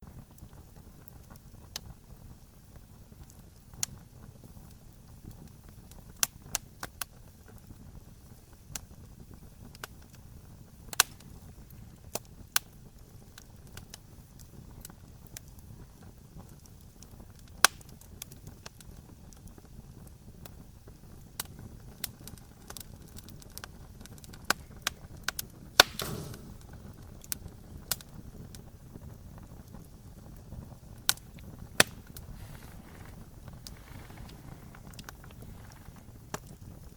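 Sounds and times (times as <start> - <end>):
campfire crackling and popping: 0.0 - 36.9
low rumble of flame: 0.0 - 36.9
brief rush of sound: 25.9 - 26.6.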